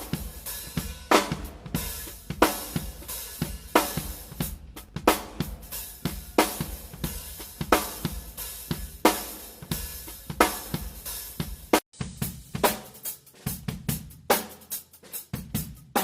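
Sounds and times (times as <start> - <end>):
cymbal and drum accents: 0.0 - 16.0
drum kit groove: 0.0 - 16.0.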